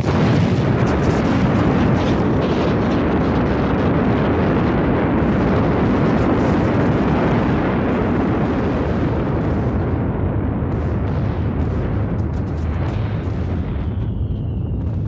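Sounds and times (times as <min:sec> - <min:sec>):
volcanic vent low rumble: 0:00.0 - 0:15.0.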